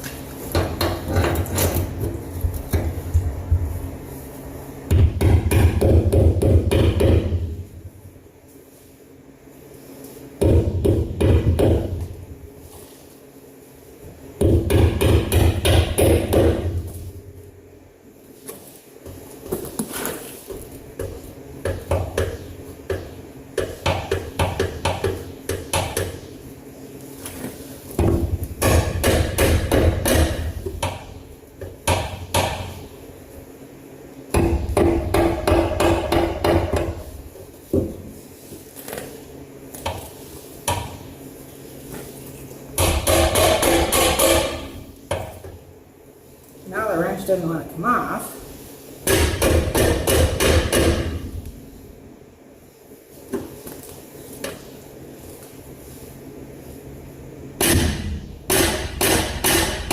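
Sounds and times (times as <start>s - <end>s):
hammer striking steel: 42.8s - 44.8s.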